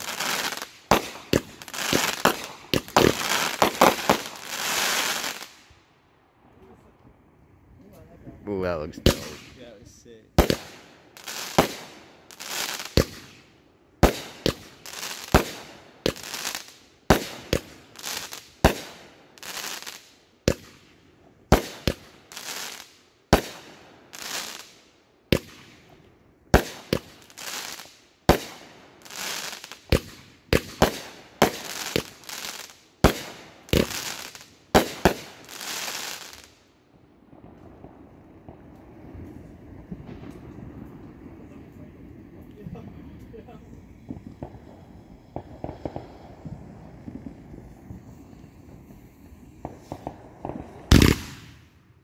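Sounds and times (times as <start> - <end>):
fireworks bangs: 0.0 - 5.7, 8.5 - 20.9, 21.5 - 36.6, 37.2 - 52.0
hissing crackle: 0.0 - 5.7, 26.6 - 36.7, 37.5 - 51.6.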